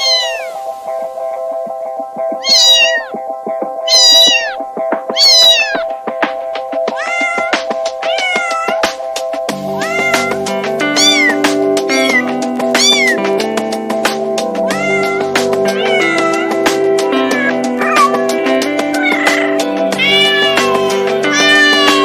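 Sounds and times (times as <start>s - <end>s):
cat meowing: 0.0s - 0.6s, 2.4s - 3.2s, 3.8s - 6.0s, 6.8s - 8.9s, 9.6s - 13.3s, 14.6s - 22.0s.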